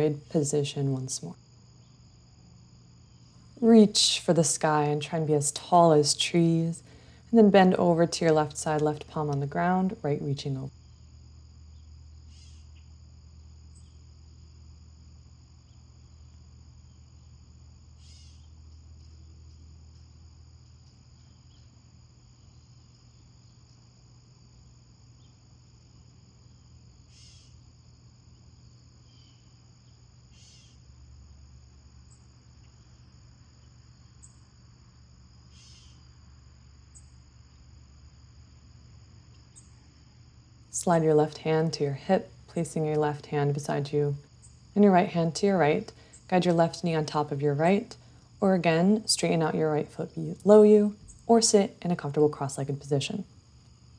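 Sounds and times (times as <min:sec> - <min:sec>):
crickets trilling: 0:00.0 - 0:53.9.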